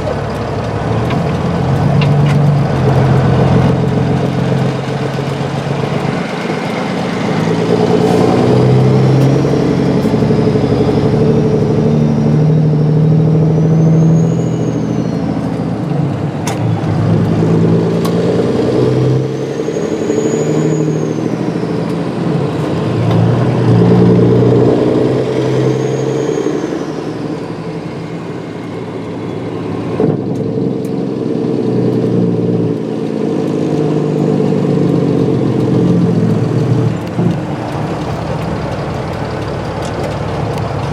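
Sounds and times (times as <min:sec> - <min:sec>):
truck diesel engine shifting gears: 0:00.0 - 0:40.9.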